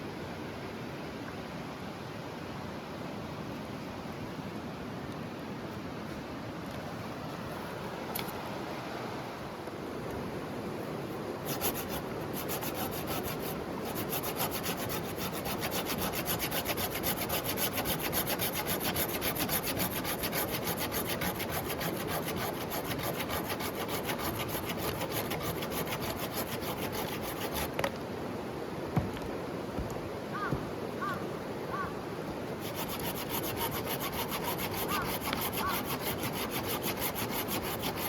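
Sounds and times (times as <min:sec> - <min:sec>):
rapid scraping on wood: 0:11.4 - 0:27.9, 0:32.6 - 0:38.0.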